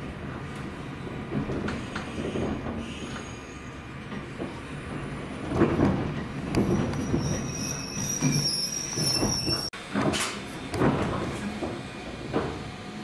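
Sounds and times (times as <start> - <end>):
wheels rumbling on rails: 0.0 - 13.0
high thin squeal: 7.0 - 9.7.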